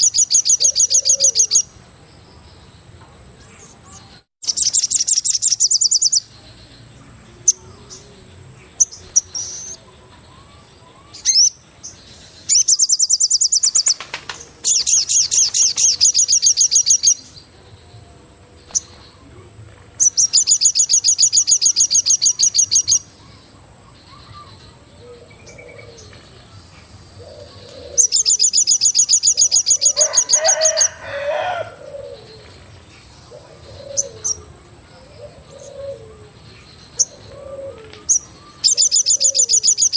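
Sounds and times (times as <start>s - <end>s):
soft low cooing calls: 0.0s - 1.6s, 20.3s - 39.9s
birds trilling high notes: 27.2s - 32.7s.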